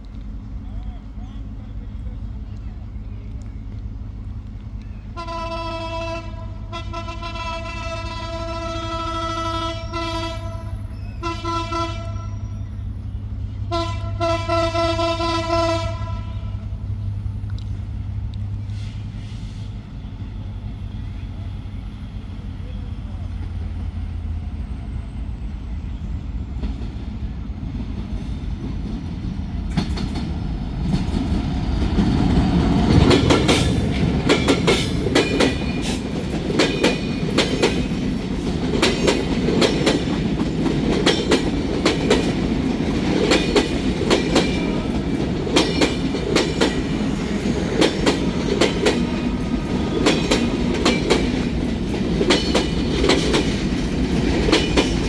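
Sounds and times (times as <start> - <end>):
train wheels clattering over rail joints: 27.8 - 55.0.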